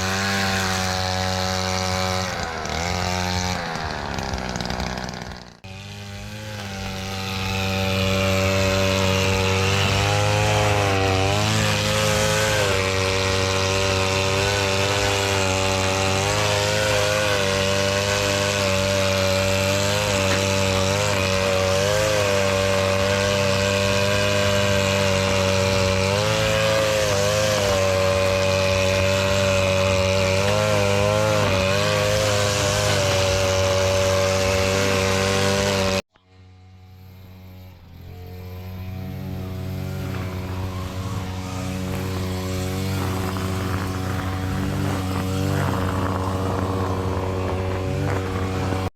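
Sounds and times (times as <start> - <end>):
small engine running at high speed: 0.0 - 48.9.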